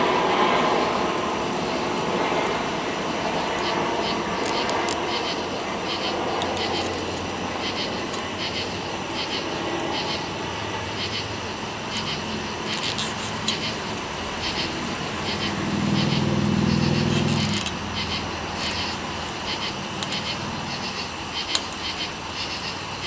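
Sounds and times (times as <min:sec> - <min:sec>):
low motor drone: 0:00.0 - 0:22.4
insects chirping: 0:00.0 - 0:23.0
low steady hum: 0:08.8 - 0:21.3.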